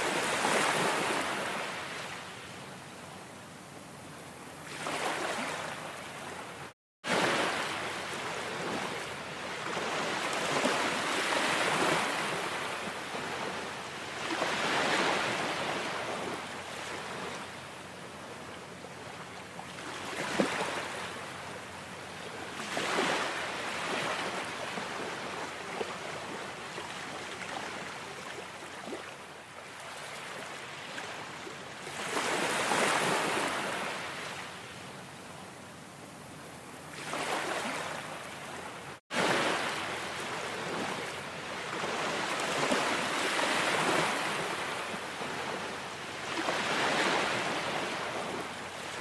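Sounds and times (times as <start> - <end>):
waves breaking on a shore: 0.0 - 49.0.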